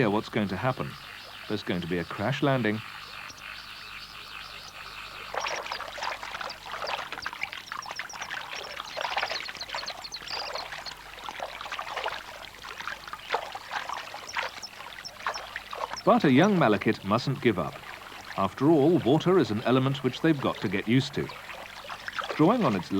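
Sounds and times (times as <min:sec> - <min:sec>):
bird splashing and flapping in water: 0:04.5 - 0:22.9.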